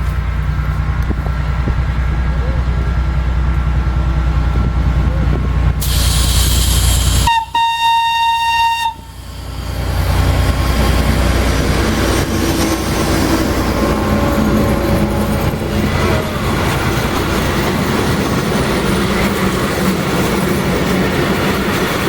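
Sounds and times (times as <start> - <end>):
burst of hiss: 5.8 - 7.5
train horn: 7.2 - 9.2
train wheels clacking over rails: 9.2 - 22.0.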